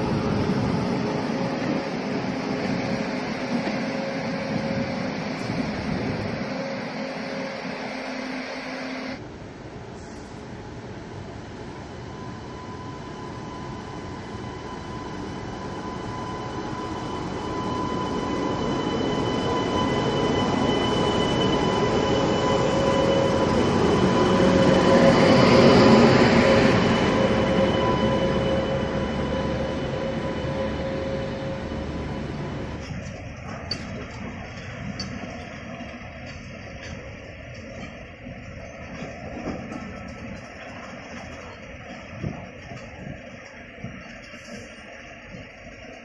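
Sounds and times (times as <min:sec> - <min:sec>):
train passing on rails: 0:00.0 - 0:46.0
steady whining tones: 0:11.8 - 0:46.0.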